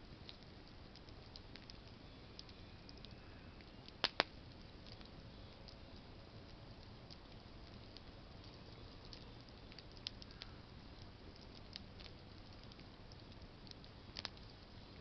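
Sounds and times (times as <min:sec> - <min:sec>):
campfire crackling: 0:00.0 - 0:15.0
sharp fire pops: 0:03.9 - 0:05.2, 0:07.2 - 0:14.5.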